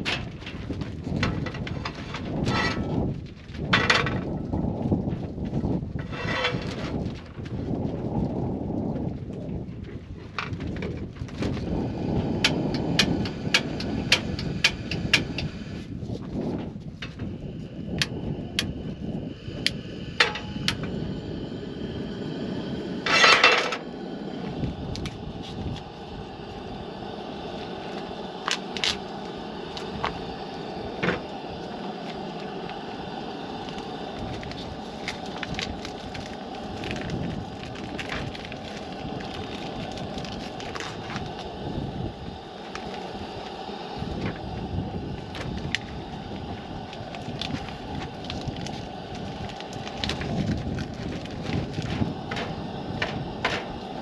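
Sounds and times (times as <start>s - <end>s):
campfire hissing: 11.4s - 54.0s
wood crackling and popping: 28.0s - 30.4s, 31.0s - 41.6s, 45.2s - 54.0s.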